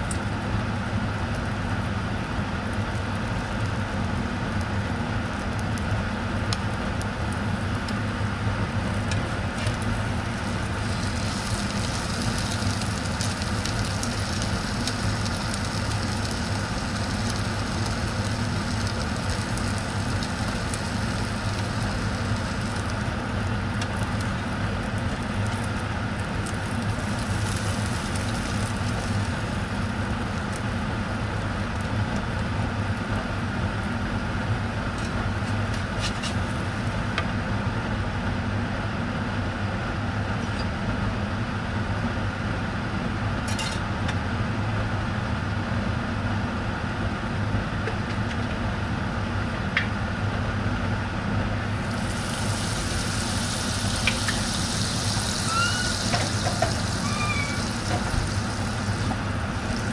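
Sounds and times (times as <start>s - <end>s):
sandwich sizzling in a pan: 9.4s - 31.8s, 51.7s - 59.9s.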